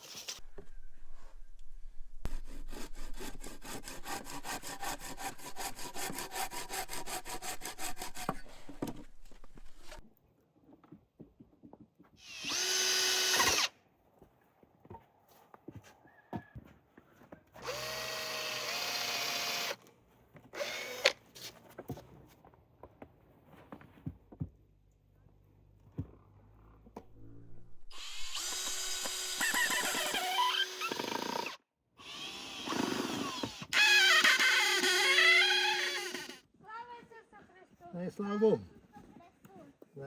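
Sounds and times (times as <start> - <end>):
power drill running: 12.2 - 13.7, 17.6 - 19.8, 20.6 - 21.2, 27.8 - 36.4.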